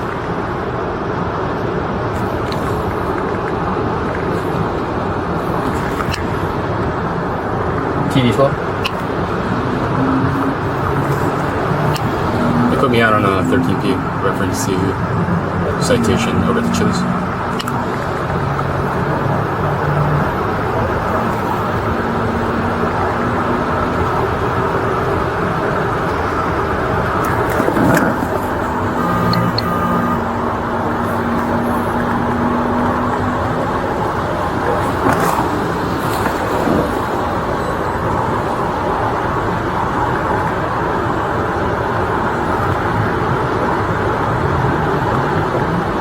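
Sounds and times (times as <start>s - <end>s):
low vehicle rumble: 0.0s - 46.0s.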